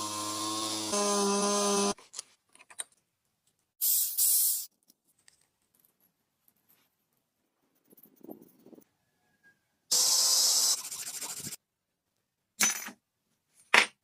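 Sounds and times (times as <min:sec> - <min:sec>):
short bursts of hiss: 0:03.8 - 0:04.7.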